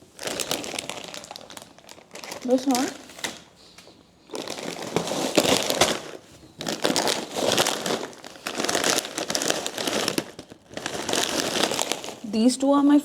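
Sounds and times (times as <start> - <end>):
plastic snack packets crinkling: 0.0 - 12.5.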